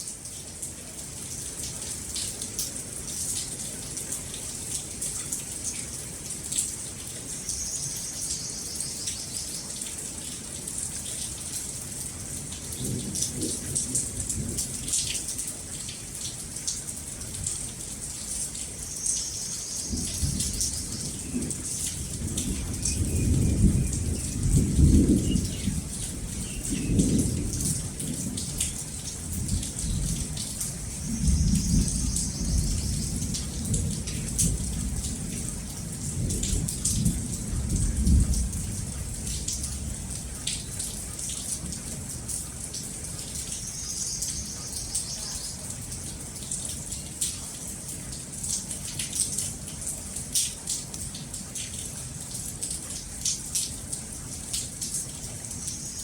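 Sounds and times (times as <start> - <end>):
rain pattering and dripping: 0.0 - 56.0
low rumbling thunder: 19.9 - 40.6.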